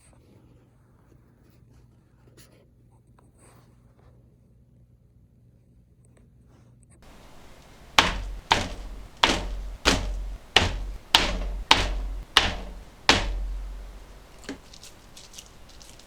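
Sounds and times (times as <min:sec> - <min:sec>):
faint tap: 0:07.0 - 0:16.0
sharp ringing knocks: 0:07.0 - 0:16.0.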